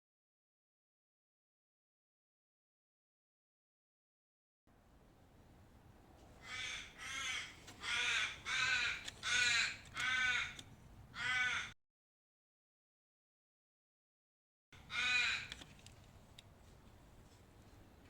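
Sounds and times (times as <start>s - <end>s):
bird harsh calls: 6.4s - 11.8s, 14.8s - 15.6s.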